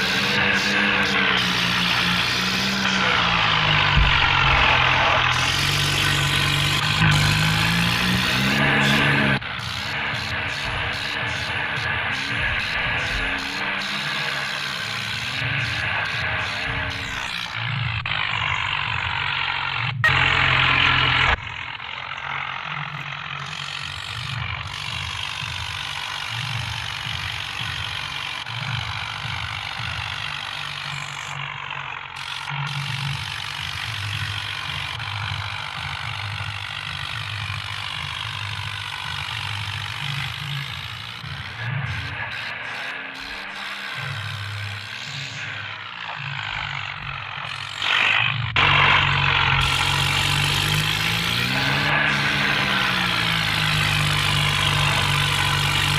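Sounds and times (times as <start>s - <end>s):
tractor engine under load: 0.0s - 55.9s.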